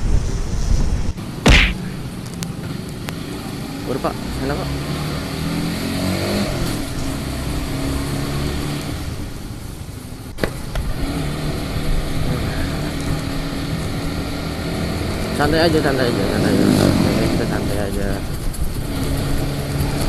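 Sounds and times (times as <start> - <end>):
sharp click: 1.5 - 1.8.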